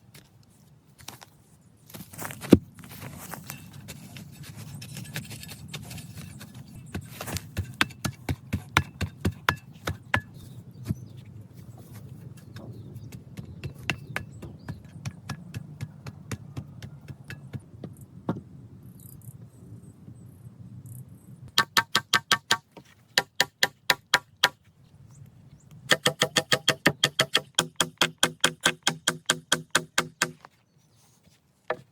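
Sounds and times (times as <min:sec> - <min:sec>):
sharp knocks and clicks: 0:12.4 - 0:18.4, 0:21.6 - 0:24.6, 0:25.9 - 0:30.5.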